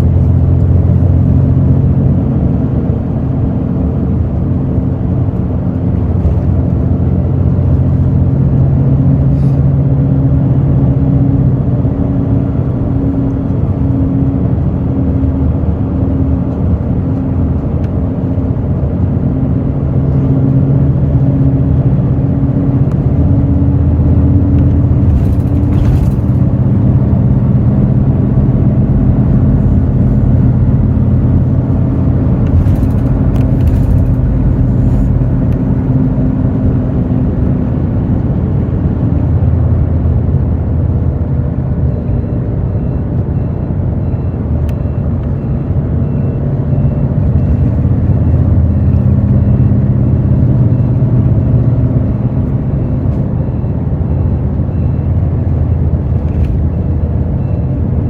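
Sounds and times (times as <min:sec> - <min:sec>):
diesel bus engine running: 0:00.0 - 0:58.0
faint high beep: 0:52.7 - 0:56.5.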